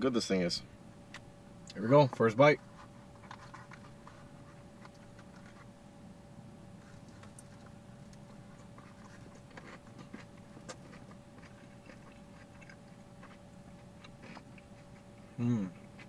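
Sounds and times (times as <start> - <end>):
faint steady hum: 0.0 - 16.0
person chewing food: 2.6 - 5.7, 6.8 - 16.0.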